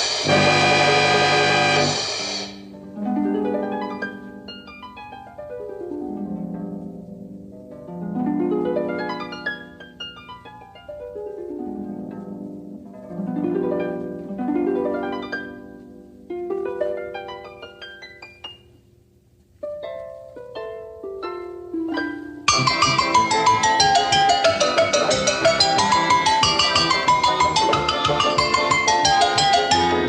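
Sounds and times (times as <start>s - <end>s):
rhythmic percussive music: 0.0s - 2.8s, 22.5s - 30.0s
harp glissandos and plucked runs: 0.0s - 4.4s, 22.0s - 30.0s.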